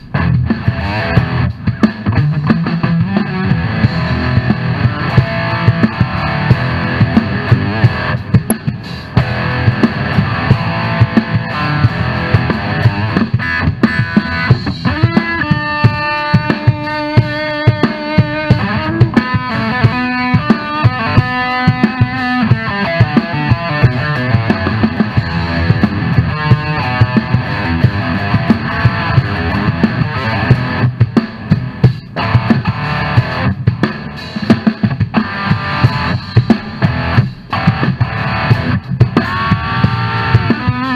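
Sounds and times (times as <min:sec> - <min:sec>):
drum kit beat: 0:00.0 - 0:40.9
electric guitar: 0:00.0 - 0:40.9
lead guitar held notes: 0:12.1 - 0:17.4, 0:18.5 - 0:24.5.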